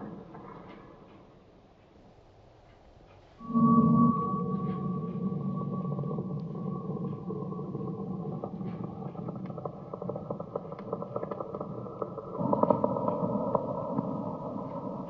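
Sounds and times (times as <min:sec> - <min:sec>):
low drone with held tones: 0:03.4 - 0:15.0
crackling clicks: 0:04.5 - 0:15.0.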